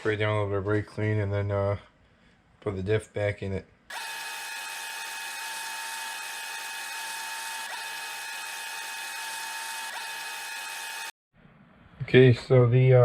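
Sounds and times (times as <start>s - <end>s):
power drill whining: 3.9s - 11.2s.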